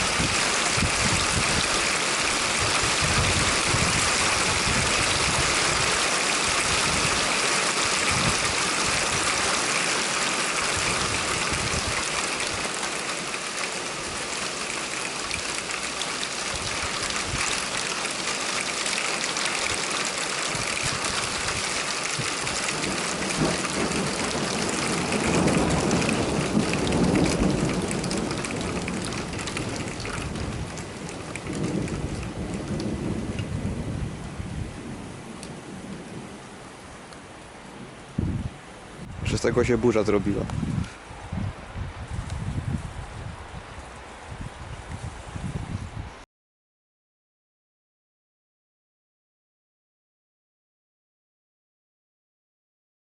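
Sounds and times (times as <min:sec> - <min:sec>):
heavy rain pouring: 0:00.0 - 0:45.8
rolling thunder: 0:02.4 - 0:06.0, 0:20.4 - 0:36.5, 0:37.8 - 0:39.9.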